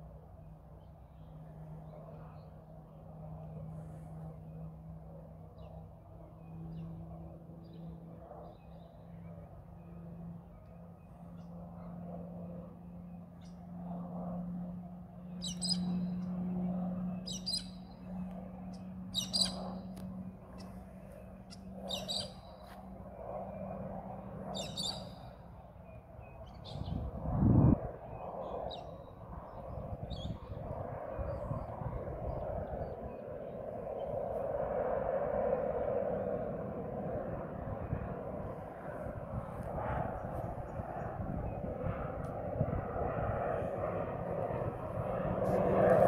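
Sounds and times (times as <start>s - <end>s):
distant propeller aircraft drone: 0.0s - 46.0s
bird chirping: 15.4s - 16.0s, 17.2s - 17.9s, 18.7s - 19.8s, 21.5s - 22.7s, 24.5s - 25.2s.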